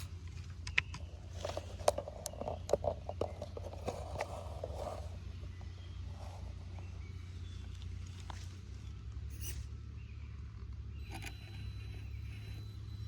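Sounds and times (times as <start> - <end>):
tyres clicking and scraping on rock: 0.0 - 5.2
small electric motor and gears whirring: 0.0 - 13.0.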